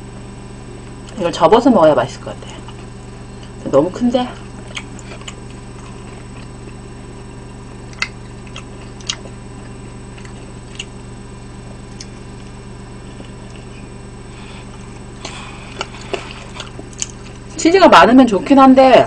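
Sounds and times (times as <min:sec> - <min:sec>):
electrical hum: 0:00.0 - 0:19.0
chewing mouth clicks: 0:04.4 - 0:06.8, 0:07.9 - 0:11.0, 0:11.9 - 0:12.2, 0:15.2 - 0:17.5
biting into pizza: 0:04.4 - 0:11.1.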